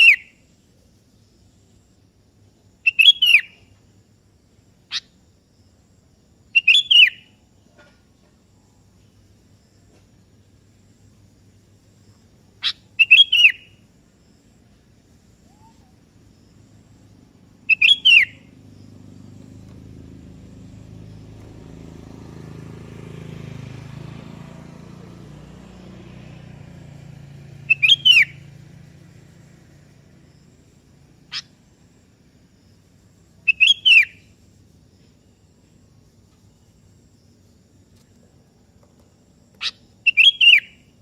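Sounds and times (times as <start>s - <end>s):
bird calls with sliding notes: 0.0s - 0.4s, 2.8s - 3.6s, 4.9s - 5.2s, 6.6s - 7.4s, 12.6s - 13.8s, 15.4s - 16.1s, 17.6s - 19.9s, 27.6s - 28.6s, 31.2s - 31.6s, 33.4s - 34.3s, 39.6s - 40.9s.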